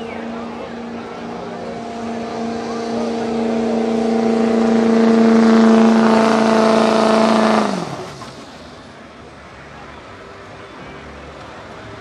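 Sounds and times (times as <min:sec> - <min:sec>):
truck engine at high revs: 0:00.0 - 0:09.1.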